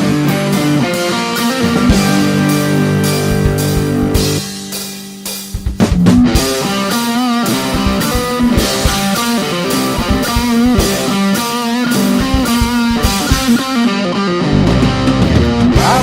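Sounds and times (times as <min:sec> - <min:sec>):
bass guitar: 0:00.0 - 0:16.0
drums: 0:00.0 - 0:16.0
electric guitar melody: 0:00.0 - 0:16.0.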